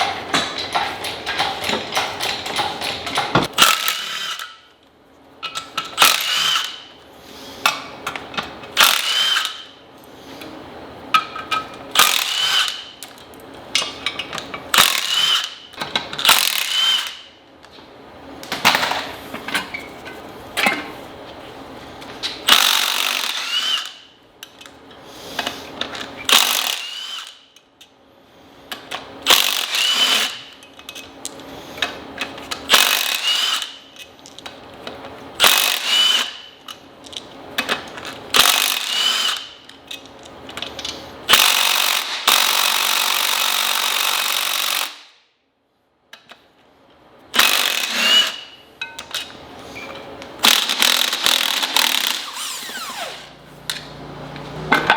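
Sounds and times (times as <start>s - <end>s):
impact wrench hammering: 0.0s - 4.6s, 14.7s - 17.3s, 22.5s - 24.0s, 26.3s - 27.4s, 32.7s - 33.8s, 41.3s - 45.2s, 47.4s - 49.0s, 50.4s - 52.8s.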